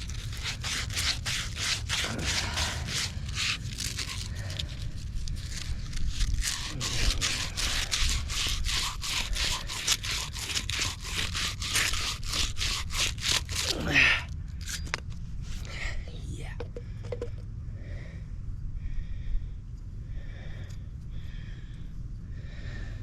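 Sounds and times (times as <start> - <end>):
hand scraping on pipe: 0.0 - 13.9.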